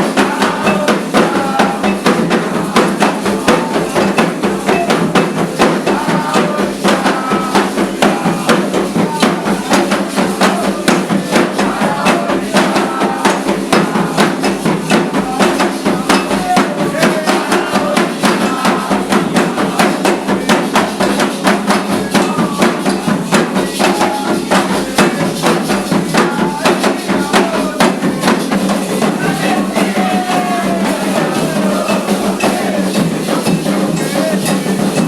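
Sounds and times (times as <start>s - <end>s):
fast ceremonial drumming: 0.0s - 35.0s
voices singing: 0.0s - 35.0s.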